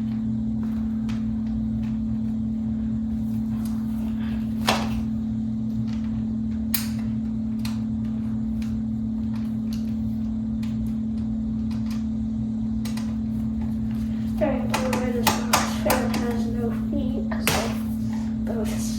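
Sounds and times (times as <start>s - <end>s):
steady low hum: 0.0s - 18.9s
clicks and knocks of fan parts: 5.7s - 12.1s, 12.8s - 16.6s, 17.3s - 17.9s.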